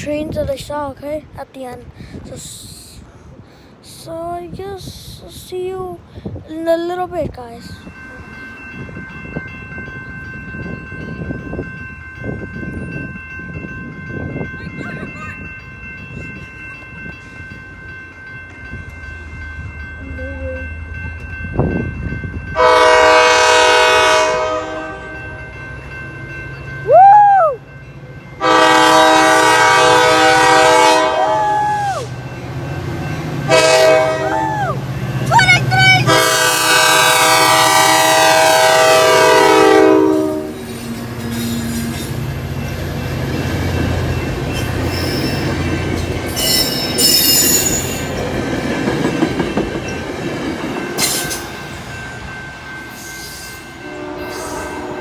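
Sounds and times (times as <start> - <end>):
train rumble: 0.0 - 55.0
locomotive horn blasts: 22.6 - 25.2, 28.4 - 31.4, 33.5 - 34.3, 36.0 - 40.6, 53.8 - 55.0.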